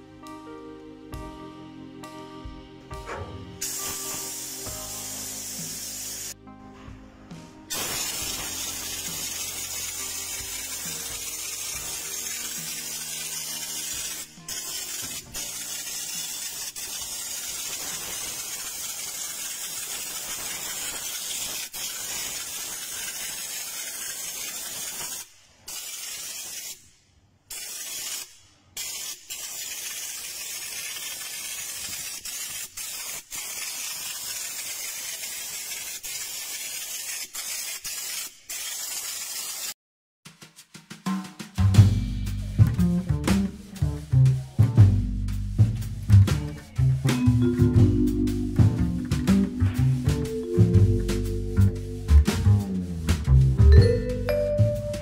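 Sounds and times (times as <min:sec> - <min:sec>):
spray gun hissing: 0:03.0 - 0:06.4, 0:07.7 - 0:26.9, 0:27.5 - 0:39.8.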